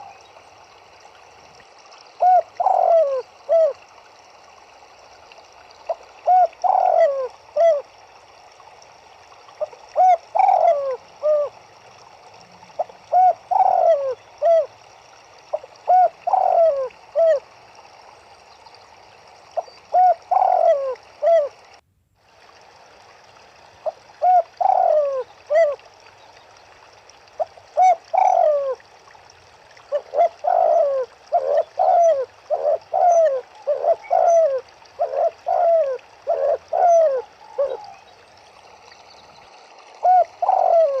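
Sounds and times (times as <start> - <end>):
turtledoves cooing: 2.2 - 3.8, 6.2 - 7.8, 9.6 - 11.5, 12.6 - 14.7, 15.5 - 17.4, 19.9 - 21.5, 24.2 - 25.8, 27.8 - 28.8, 29.9 - 38.0, 40.0 - 41.0.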